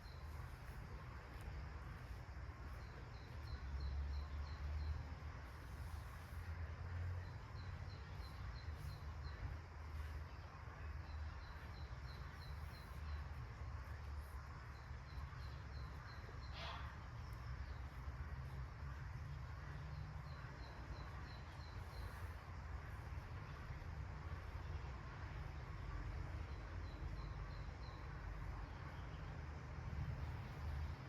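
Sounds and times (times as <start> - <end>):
small bird chirping: 0.0 - 6.5, 7.1 - 19.0, 19.6 - 23.7
low steady rumble: 0.0 - 31.0.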